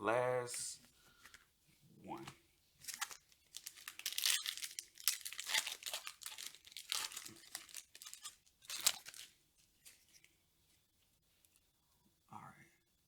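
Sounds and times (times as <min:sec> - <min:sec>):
plastic and foil packaging tearing: 0:02.8 - 0:09.3.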